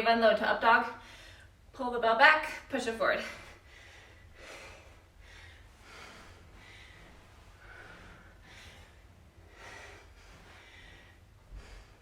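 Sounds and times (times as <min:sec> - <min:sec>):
low room hum: 0:00.0 - 0:12.0
heavy breathing: 0:03.2 - 0:12.0.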